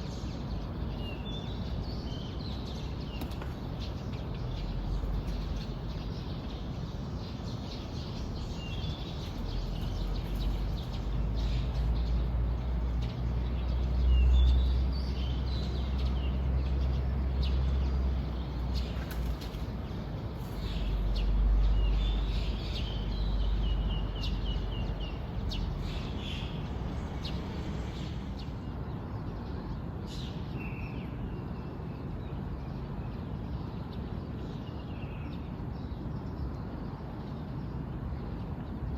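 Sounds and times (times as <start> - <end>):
birds chirping: 0.0 - 28.7.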